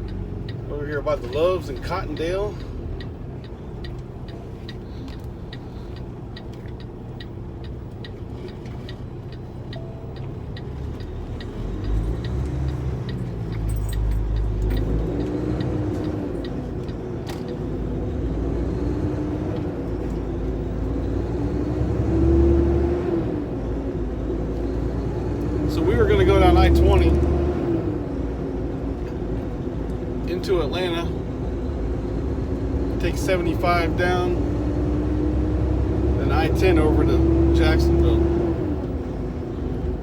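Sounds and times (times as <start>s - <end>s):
turn signal clicking: 0.0s - 18.0s
diesel truck engine running: 0.0s - 40.0s.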